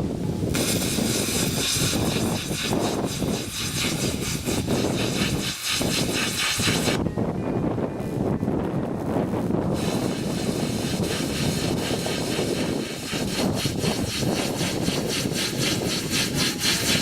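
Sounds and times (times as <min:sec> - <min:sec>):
plasma cutter crackling hiss: 0:00.5 - 0:07.0, 0:09.8 - 0:17.0.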